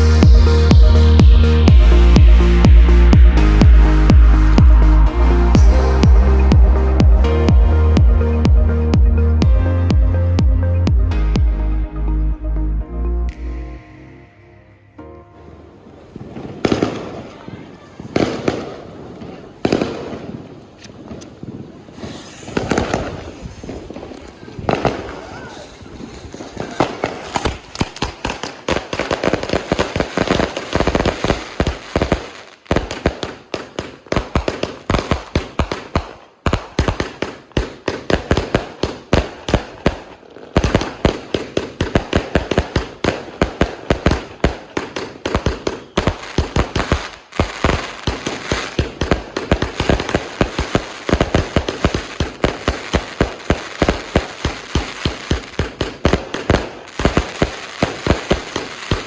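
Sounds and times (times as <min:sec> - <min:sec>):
firework bangs and crackle: 0:16.1 - 0:59.0.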